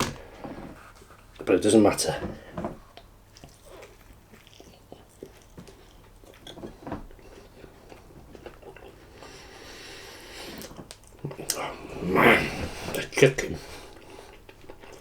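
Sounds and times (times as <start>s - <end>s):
person chewing food: 3.3s - 9.3s.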